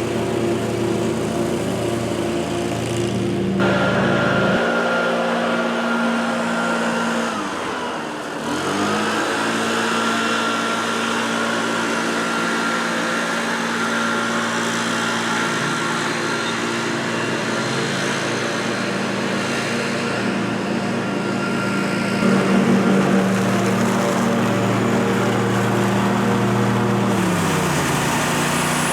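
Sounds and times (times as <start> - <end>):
small petrol engine running: 0.0 - 28.9
high whine: 3.4 - 8.2.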